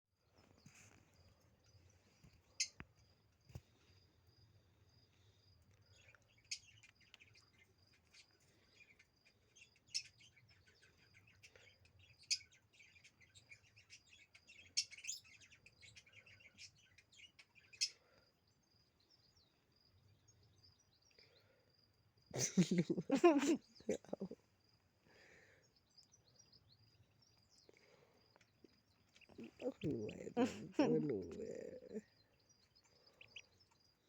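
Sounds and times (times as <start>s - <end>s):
ducklings peeping: 6.0s - 18.1s, 26.9s - 34.0s.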